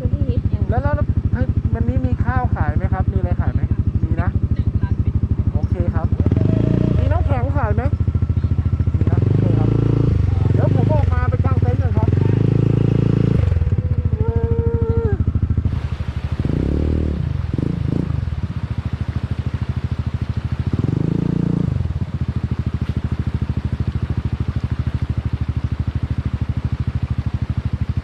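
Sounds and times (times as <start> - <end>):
vehicle engine throbbing: 0.0 - 28.0.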